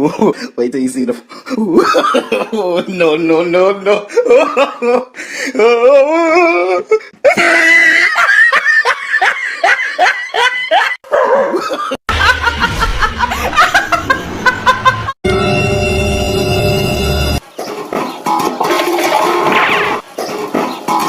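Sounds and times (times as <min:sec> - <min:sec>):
person laughing hard: 0:01.6 - 0:02.9, 0:03.9 - 0:15.2
low rumble: 0:12.1 - 0:15.1.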